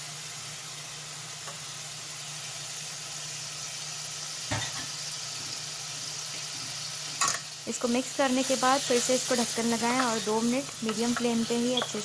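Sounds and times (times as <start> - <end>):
food sizzling in oil: 0.0 - 12.0
spoon knocking against pan: 10.8 - 12.0.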